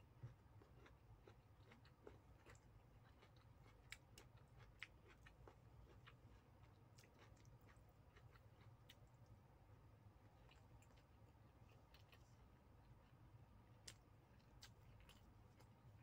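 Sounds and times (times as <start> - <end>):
low steady hum: 0.0 - 16.0
close-up chewing: 0.2 - 9.4, 10.3 - 13.2, 13.8 - 16.0.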